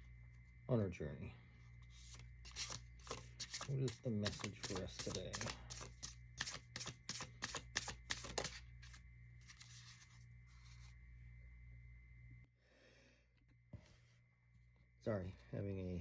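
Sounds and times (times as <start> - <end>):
cards shuffling: 1.9 - 10.9.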